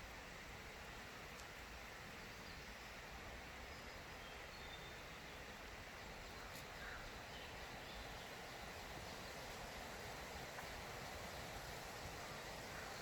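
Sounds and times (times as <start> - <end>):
faint steady hiss: 0.0 - 13.0
faint bird calls: 6.1 - 9.6, 12.0 - 13.0.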